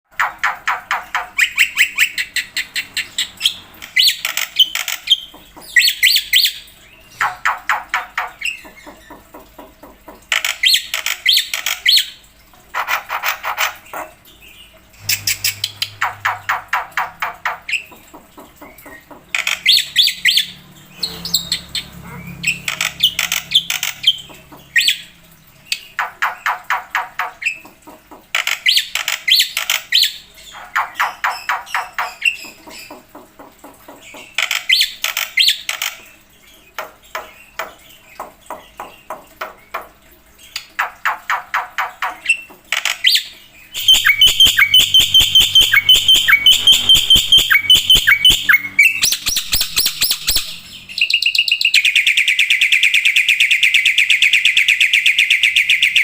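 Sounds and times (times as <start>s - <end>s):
bird chattering song: 0.1s - 12.1s, 12.8s - 36.1s, 40.5s - 56.0s
bird high piping and trill: 15.0s - 18.0s, 42.8s - 56.0s.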